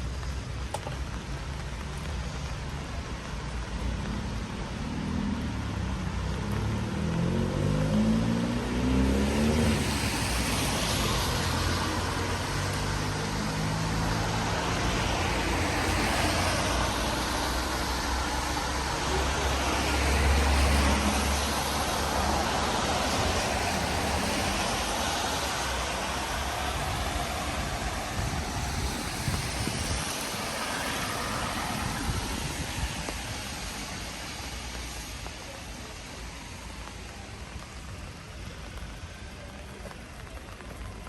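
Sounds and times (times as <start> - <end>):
tyre hiss on wet road: 0.0 - 41.0
car engine pulling away: 4.1 - 16.8.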